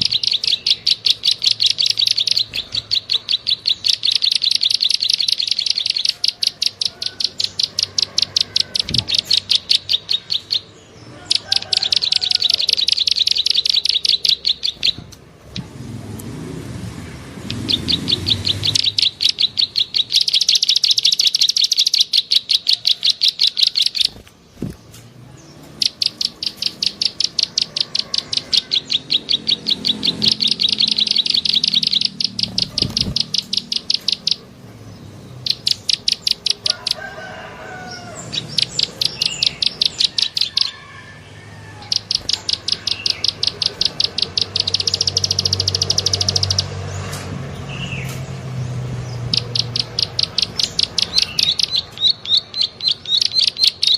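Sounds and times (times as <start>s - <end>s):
bird lure clicking call: 0.0s - 10.6s, 11.3s - 15.7s, 18.6s - 24.2s, 25.8s - 34.4s, 35.5s - 37.0s, 41.8s - 47.2s, 49.3s - 53.9s
bird warbling: 0.0s - 15.8s, 16.9s - 34.6s, 35.4s - 47.1s, 49.1s - 53.9s.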